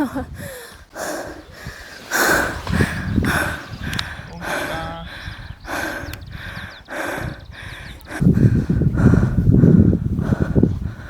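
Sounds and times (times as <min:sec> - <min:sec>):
footsteps on sand: 0:01.5 - 0:04.9.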